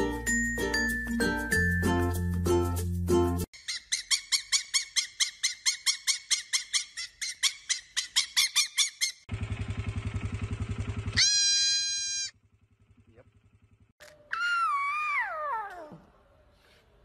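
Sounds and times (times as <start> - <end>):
fox chattering high chirps: 3.6 - 9.2
baby goat bleating: 11.2 - 12.3.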